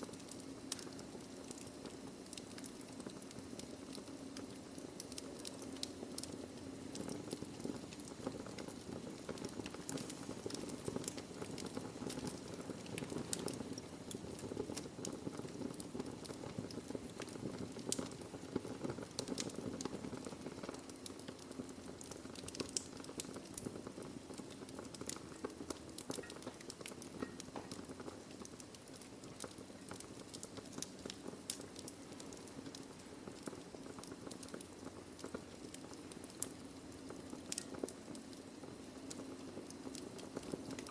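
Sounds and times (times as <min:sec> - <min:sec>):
logs crackling and popping: 0:00.0 - 0:40.9
fire rushing: 0:01.8 - 0:40.9.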